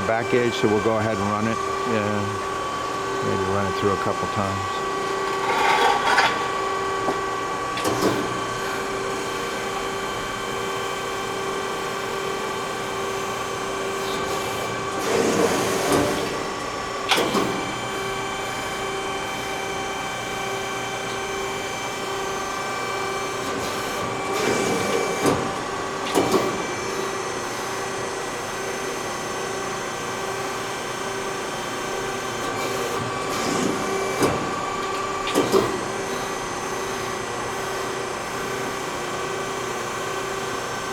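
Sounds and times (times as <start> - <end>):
hydraulic pump whine: 0.0 - 40.9
press brake surges and clunks: 3.8 - 10.4, 32.4 - 37.6.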